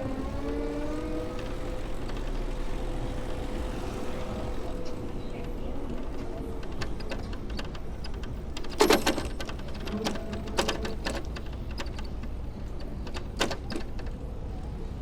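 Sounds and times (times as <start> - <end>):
bicycle clicks and rattles: 4.7 - 14.4.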